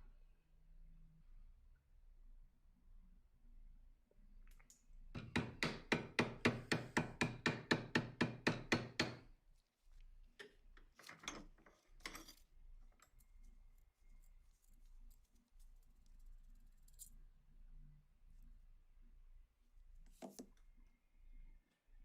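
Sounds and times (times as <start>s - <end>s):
hammer tapping on metal part: 5.2s - 9.2s.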